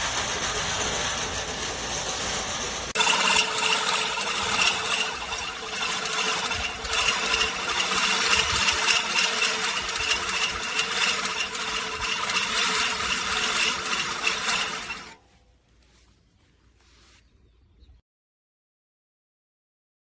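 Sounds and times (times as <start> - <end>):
reel mower whirring and clattering: 0.0 - 15.4.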